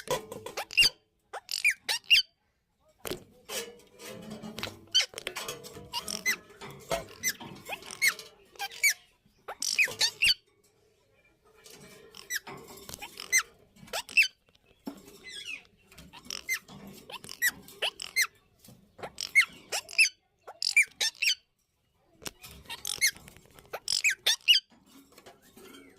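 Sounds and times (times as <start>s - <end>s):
parrots squeaky chirping: 0.0s - 2.4s, 4.6s - 10.5s, 12.0s - 21.5s, 22.2s - 24.7s.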